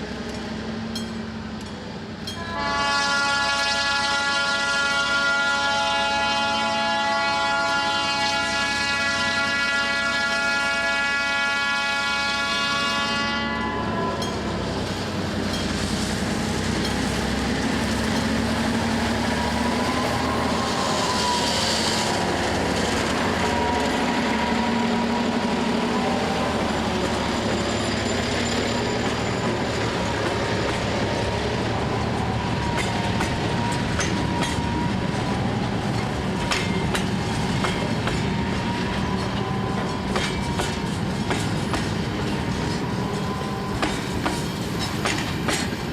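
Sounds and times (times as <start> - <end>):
freight train rolling past: 0.0 - 45.9
train horn blast: 2.4 - 14.4
wheel squeal: 25.8 - 30.7
wheels clicking over rail joints: 32.0 - 45.9.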